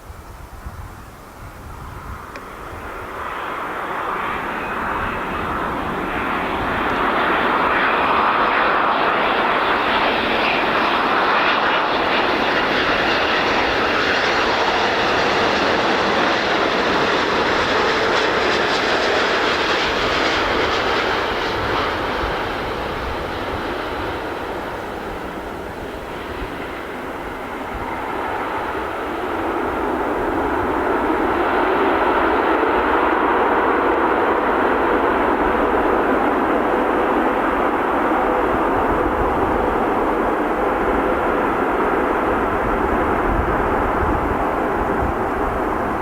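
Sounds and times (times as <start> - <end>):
jet airliner passing: 0.3 - 46.0.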